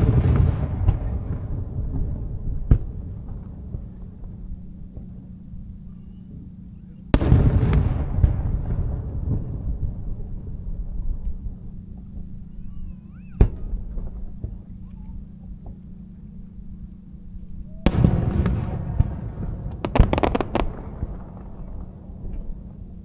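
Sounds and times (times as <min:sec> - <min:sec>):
firework bangs: 0:00.0 - 0:05.2, 0:07.1 - 0:10.7, 0:17.8 - 0:22.8
sharp crackling cracks: 0:00.0 - 0:06.5, 0:17.9 - 0:23.0
rumble: 0:00.0 - 0:23.0.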